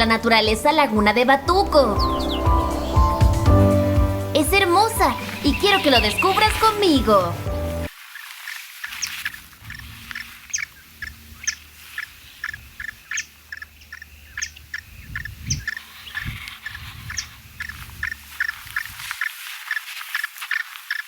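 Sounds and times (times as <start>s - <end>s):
low rumble: 0.0s - 7.9s
wetland birds calling: 0.0s - 7.9s, 8.8s - 21.0s.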